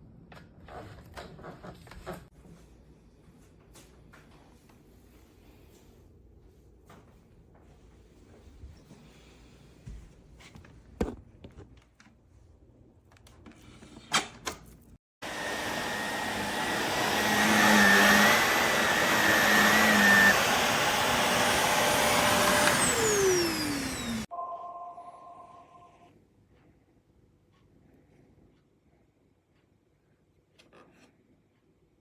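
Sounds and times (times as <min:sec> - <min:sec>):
upright vacuum running: 0:15.2 - 0:24.3.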